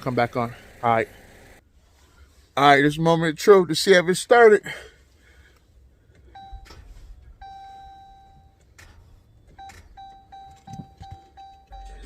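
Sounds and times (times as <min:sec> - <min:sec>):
car dashboard warning chime beeping: 0:06.3 - 0:06.8, 0:07.4 - 0:08.7, 0:09.3 - 0:12.0.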